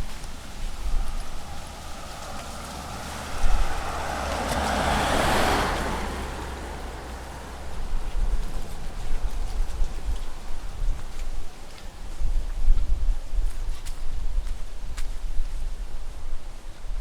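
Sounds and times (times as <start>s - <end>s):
car passing by: 0.0s - 12.2s.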